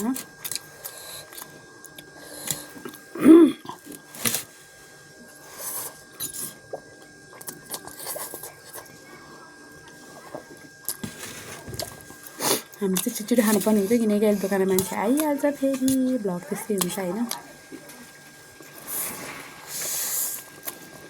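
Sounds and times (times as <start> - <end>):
chewing noodles: 0.4 - 3.1, 5.4 - 9.2, 9.8 - 16.0.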